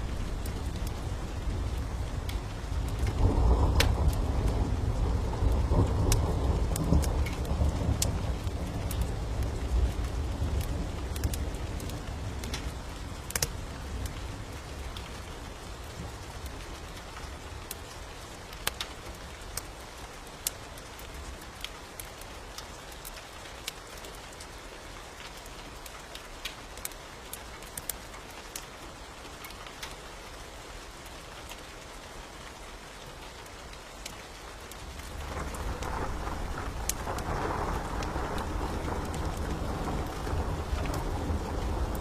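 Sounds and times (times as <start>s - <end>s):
low thunder rumble: 0.0s - 14.8s, 35.0s - 42.0s
steady rain: 0.0s - 42.0s
wood fire crackling: 0.0s - 42.0s.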